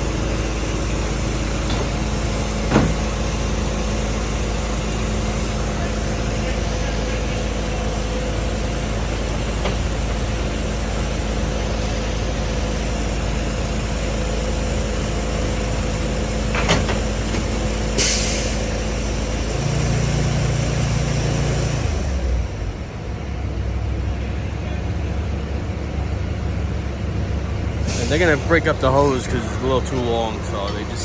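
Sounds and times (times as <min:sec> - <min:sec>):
diesel fire trucks idling: 0:00.0 - 0:31.0
air hiss: 0:27.8 - 0:28.7.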